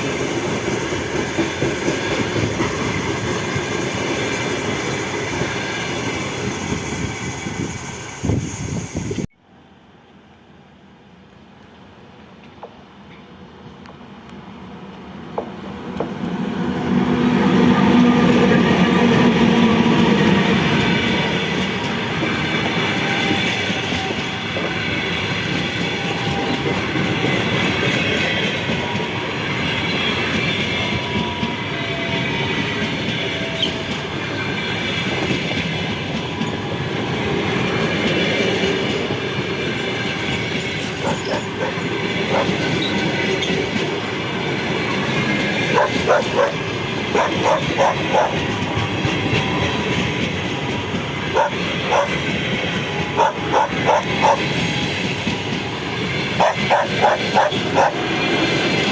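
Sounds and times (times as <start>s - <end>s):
train wheels rumbling on rail: 0.0s - 9.3s, 11.6s - 58.9s
high wheel squeal: 1.7s - 9.3s, 17.7s - 37.6s, 38.3s - 58.9s
rail-joint clicks: 12.4s - 16.2s, 18.3s - 32.1s, 38.0s - 58.9s.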